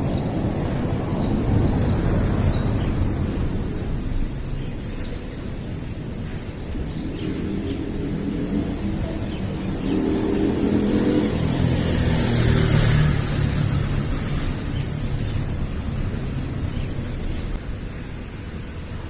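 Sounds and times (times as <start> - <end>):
vehicle passing by: 0.0 - 17.6.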